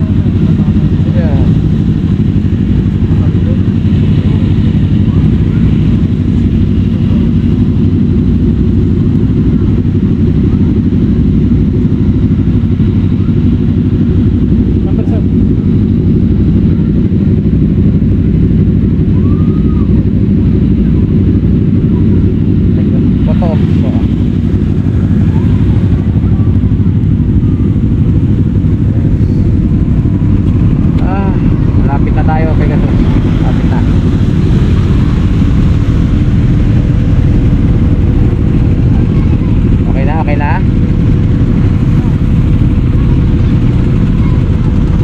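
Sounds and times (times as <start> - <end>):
motorcycle engine rumble: 0.0 - 45.0.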